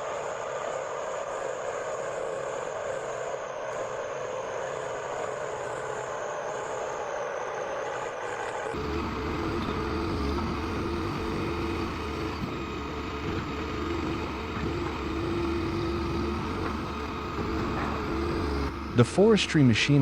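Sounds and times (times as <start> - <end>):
diesel engine running under load: 8.7 - 20.0.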